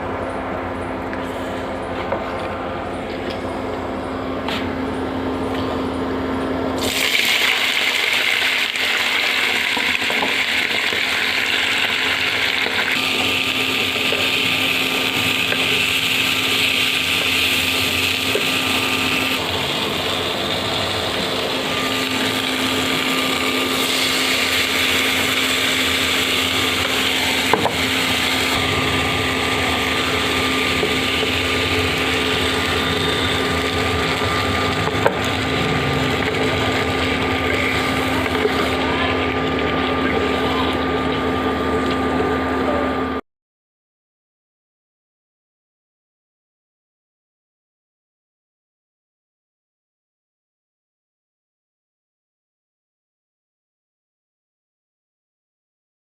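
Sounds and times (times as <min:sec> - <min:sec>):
electric mixer grinder running: 0:06.8 - 0:42.6.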